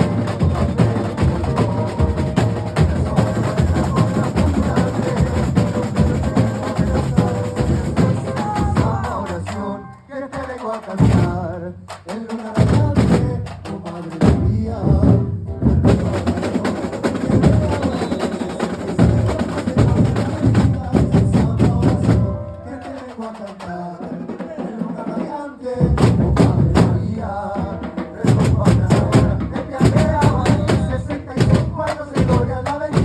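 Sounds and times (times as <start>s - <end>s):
drum section playing percussion: 0.0s - 33.0s.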